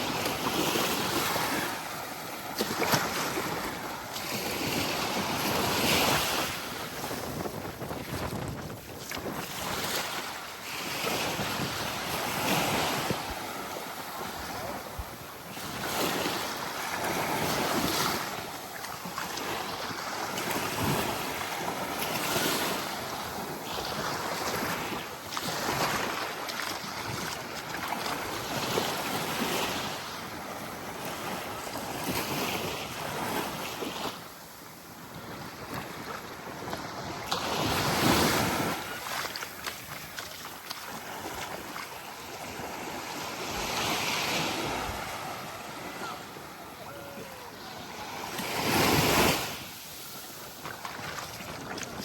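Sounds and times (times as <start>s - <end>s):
waves lapping on sandy beach: 0.0s - 52.0s
wind buffeting microphone: 5.8s - 9.9s.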